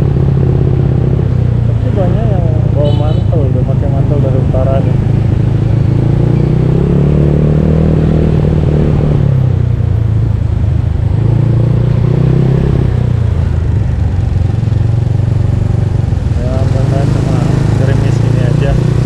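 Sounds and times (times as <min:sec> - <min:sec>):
scooter engine revving: 0:14.4 - 0:19.0.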